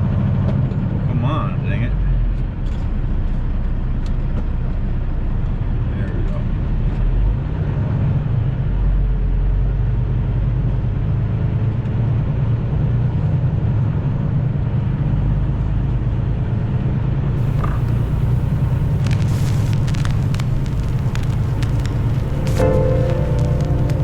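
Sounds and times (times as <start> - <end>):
truck rumble inside cab: 17.4 - 24.0.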